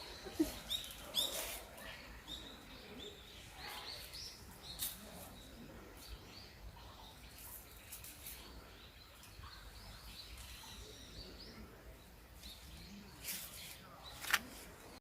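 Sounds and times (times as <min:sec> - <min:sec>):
quiet outdoor background noise: 0:00.0 - 0:15.0
brief rustles: 0:13.2 - 0:14.8.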